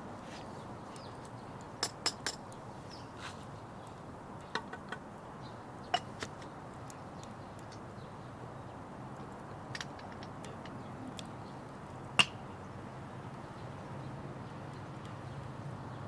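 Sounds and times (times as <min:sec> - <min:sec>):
steady low hiss: 0:00.0 - 0:16.0
wood fire crackling and popping: 0:03.6 - 0:13.5.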